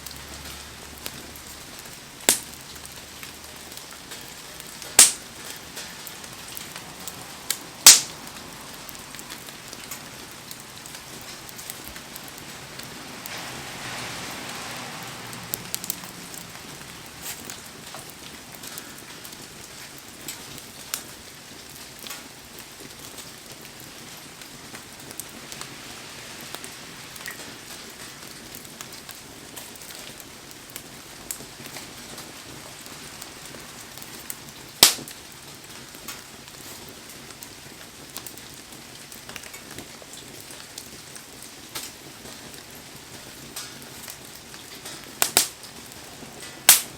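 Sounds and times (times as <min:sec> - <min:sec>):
heavy rain hissing: 0:00.0 - 0:21.4, 0:22.3 - 0:36.9
wood fire crackling and popping: 0:00.0 - 0:46.9.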